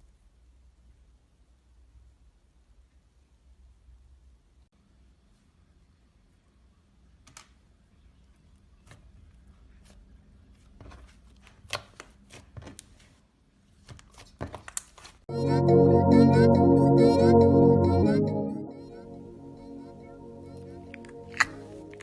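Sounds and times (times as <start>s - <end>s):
low steady hum: 15.3s - 22.0s.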